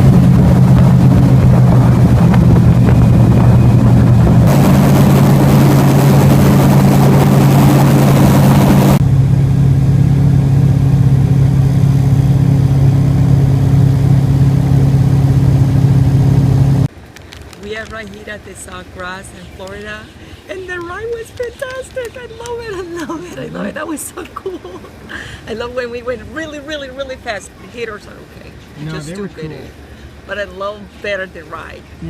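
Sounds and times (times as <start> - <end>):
airboat engine and propeller: 0.0 - 16.9.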